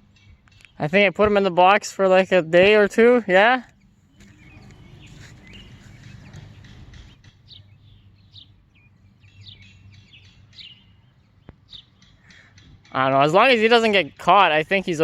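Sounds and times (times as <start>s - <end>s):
bird chirping: 0.0s - 1.1s, 3.7s - 13.0s.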